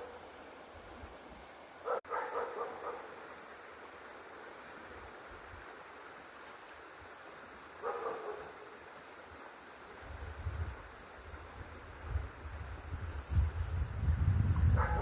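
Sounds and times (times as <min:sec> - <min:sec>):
river water flowing: 0:00.0 - 0:12.0
dog barking: 0:01.8 - 0:03.2, 0:07.8 - 0:08.8, 0:14.8 - 0:15.0.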